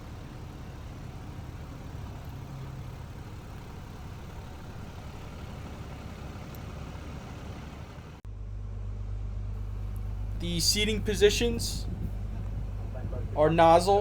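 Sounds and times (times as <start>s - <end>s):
diesel engine idling: 0.0s - 14.0s
low steady hum: 0.0s - 14.0s.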